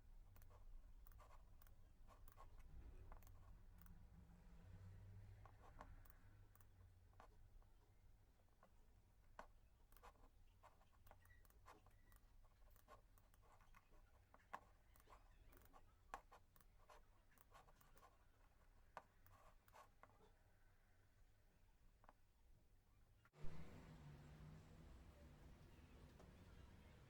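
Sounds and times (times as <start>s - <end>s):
faint scratching and ticks: 0.0s - 21.0s
low steady hum: 23.4s - 27.0s.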